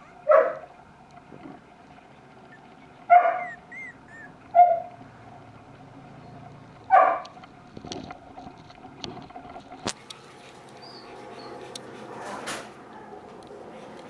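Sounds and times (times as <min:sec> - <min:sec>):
puppy yelp: 0:00.0 - 0:00.7, 0:02.5 - 0:05.0.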